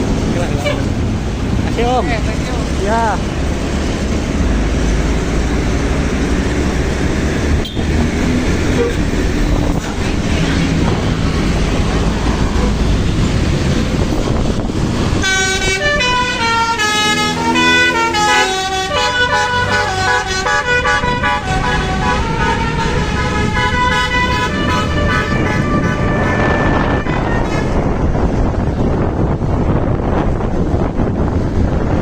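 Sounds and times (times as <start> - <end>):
road and engine noise: 0.0 - 32.0
multi-tone musical bus horn: 0.5 - 1.0, 7.6 - 8.0, 8.6 - 9.2, 15.1 - 28.0.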